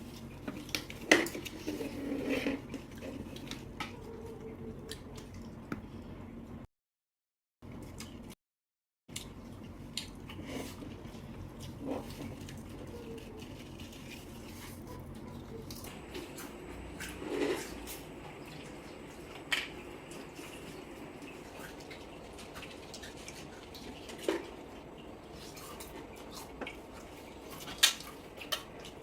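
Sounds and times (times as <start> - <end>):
wet chewing of seafood: 9.1 - 29.0.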